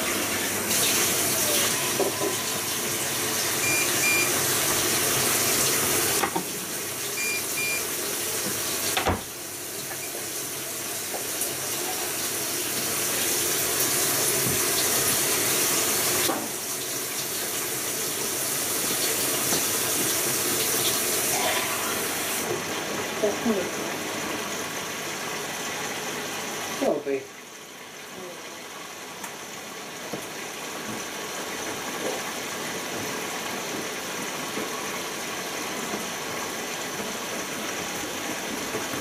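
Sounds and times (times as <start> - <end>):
water rushing into washing machine: 0.0 - 39.0
control panel beeps: 3.6 - 4.3, 7.2 - 7.8.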